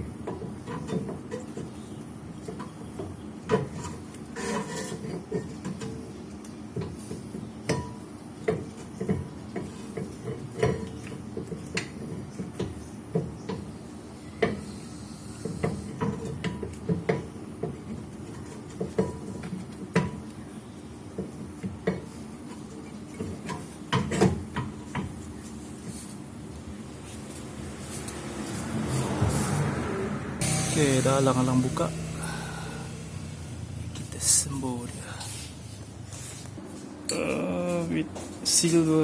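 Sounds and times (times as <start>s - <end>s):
steady low hum: 30.4s - 39.0s.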